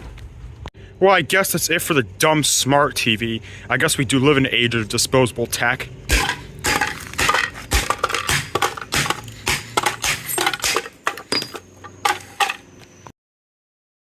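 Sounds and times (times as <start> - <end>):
small hard objects clattering: 6.1 - 12.7.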